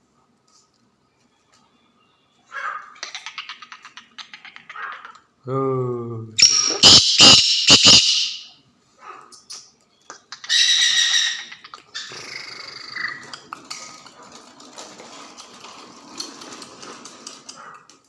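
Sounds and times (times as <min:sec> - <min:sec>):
bird harsh call: 0:06.4 - 0:08.6, 0:10.3 - 0:13.3
faint uneven background sound: 0:08.6 - 0:18.0.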